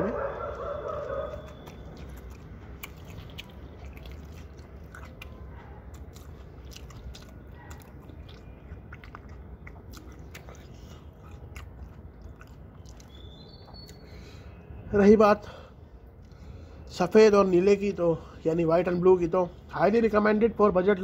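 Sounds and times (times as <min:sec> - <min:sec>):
person chewing food: 0:00.3 - 0:14.2.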